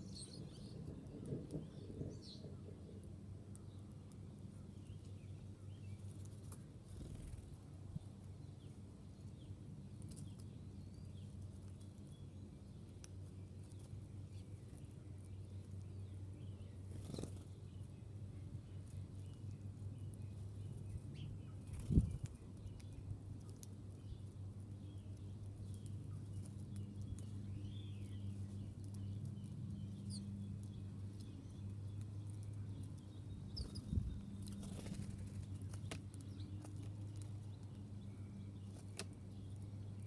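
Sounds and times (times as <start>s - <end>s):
faint bird chirps: 13.7s - 18.0s, 18.8s - 40.0s.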